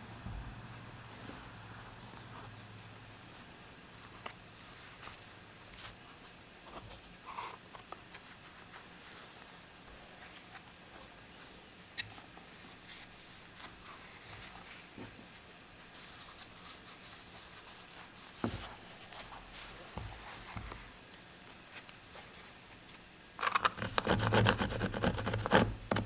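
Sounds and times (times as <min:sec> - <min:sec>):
faint scratching and rubbing: 0:23.4 - 0:26.0.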